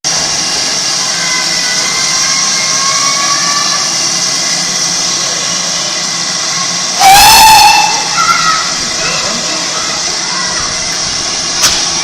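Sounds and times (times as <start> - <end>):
steam locomotive hissing: 0.0 - 12.0
locomotive whistle blast: 7.0 - 8.7.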